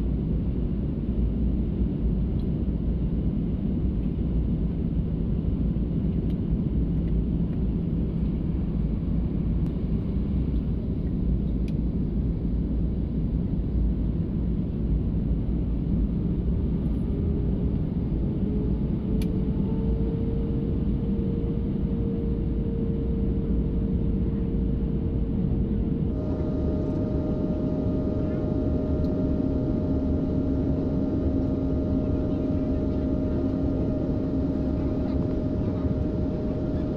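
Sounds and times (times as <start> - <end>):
airliner cabin engine rumble: 0.0 - 36.9
faint tone: 19.4 - 36.9.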